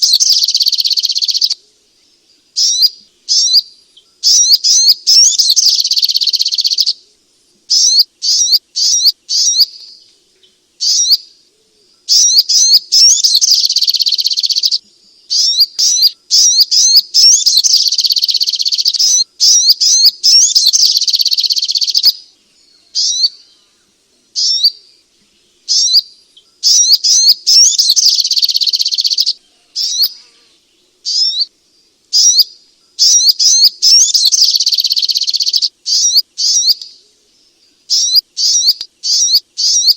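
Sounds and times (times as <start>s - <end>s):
bird rapid high chirps: 0.0s - 1.6s, 2.6s - 7.0s, 7.7s - 10.0s, 10.8s - 11.2s, 12.1s - 22.2s, 22.9s - 23.4s, 24.4s - 24.8s, 25.6s - 30.2s, 31.0s - 31.5s, 32.1s - 37.0s, 37.9s - 39.9s.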